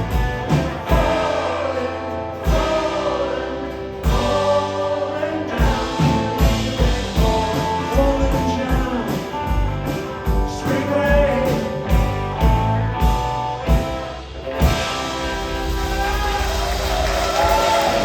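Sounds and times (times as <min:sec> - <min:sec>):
drums beating: 0:00.0 - 0:01.8, 0:02.4 - 0:04.8, 0:05.5 - 0:18.0
live rock band playing: 0:00.0 - 0:18.0
person singing: 0:00.8 - 0:12.2.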